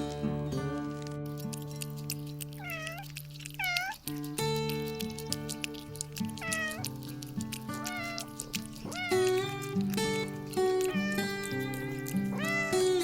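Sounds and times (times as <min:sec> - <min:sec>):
cat meowing: 0:02.5 - 0:04.2, 0:06.0 - 0:13.0.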